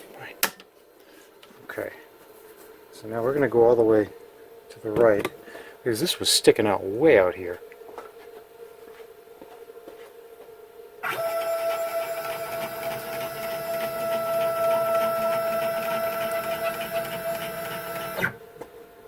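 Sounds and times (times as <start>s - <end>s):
faint hum: 0.0s - 19.0s
stepper motors whining: 11.0s - 18.4s.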